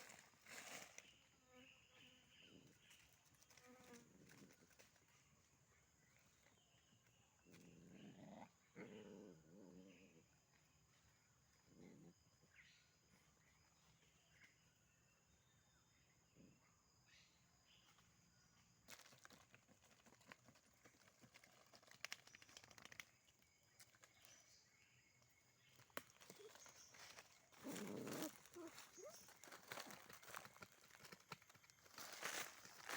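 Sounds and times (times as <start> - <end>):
dog paws scratching soil: 26.0 - 32.9.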